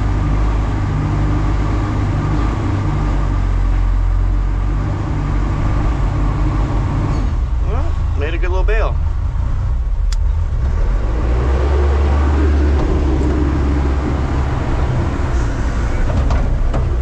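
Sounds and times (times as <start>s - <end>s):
metal baler rumbling: 0.0s - 17.0s
sharp click: 10.1s - 10.3s.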